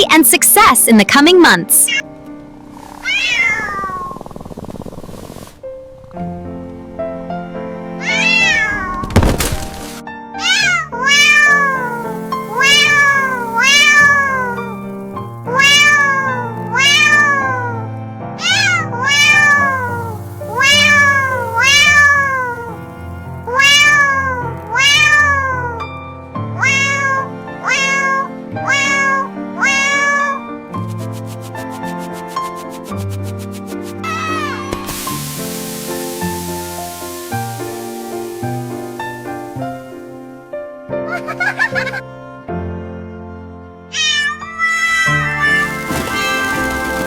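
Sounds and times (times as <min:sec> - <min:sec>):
background music: 0:00.0 - 0:02.9, 0:09.5 - 0:47.0
cat meowing: 0:02.9 - 0:04.2, 0:08.0 - 0:09.1, 0:10.4 - 0:17.8, 0:18.4 - 0:22.8, 0:23.4 - 0:25.8, 0:26.6 - 0:30.4, 0:34.0 - 0:35.1, 0:43.9 - 0:45.6.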